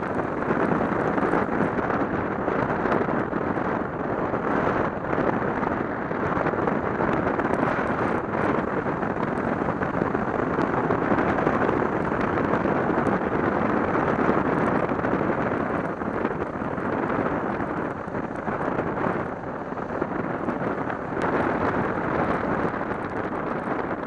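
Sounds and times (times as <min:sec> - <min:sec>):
road and engine noise: 0:00.0 - 0:24.0
wind rushing on microphone: 0:00.0 - 0:24.0.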